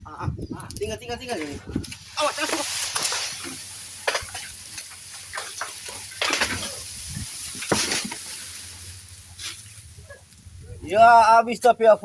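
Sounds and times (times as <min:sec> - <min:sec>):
branches and leaves crackling: 0:00.7 - 0:12.0
tree crashing down: 0:01.3 - 0:11.0.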